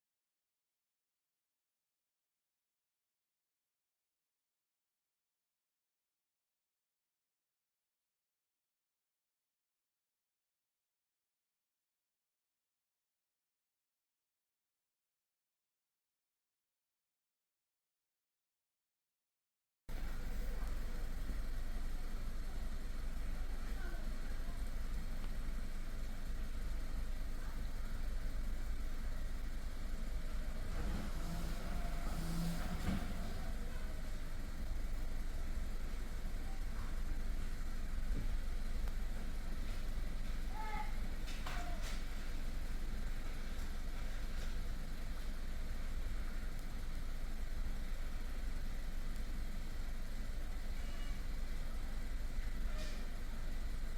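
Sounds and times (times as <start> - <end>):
car engine running: 19.9 - 53.9
steady hum: 19.9 - 53.9.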